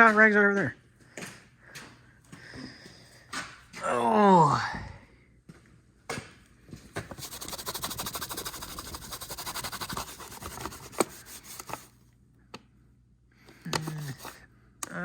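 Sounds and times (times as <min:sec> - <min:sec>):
rag scrubbing a cover: 0:07.1 - 0:11.9, 0:13.8 - 0:14.4.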